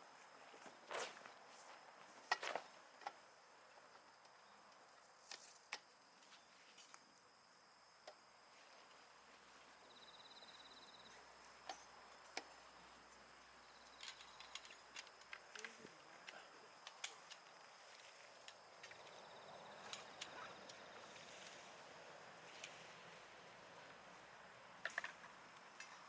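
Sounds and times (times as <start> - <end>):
insect trill: 0.2 - 26.0.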